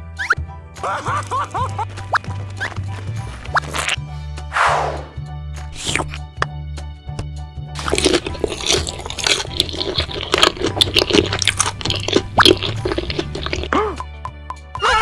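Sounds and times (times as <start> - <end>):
background music: 0.0 - 15.0
cartoon crunching and squishing: 7.8 - 14.0.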